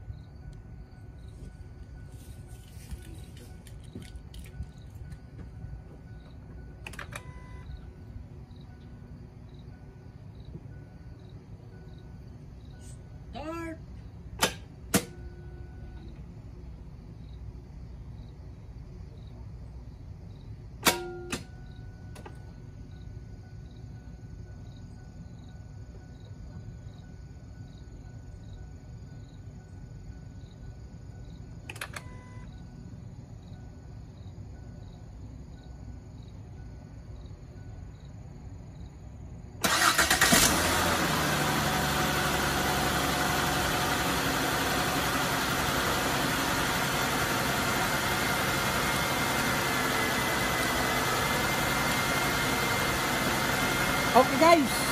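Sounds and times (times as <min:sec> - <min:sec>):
starter cranking engine: 0:39.6 - 0:42.5
car engine idling: 0:39.6 - 0:54.9.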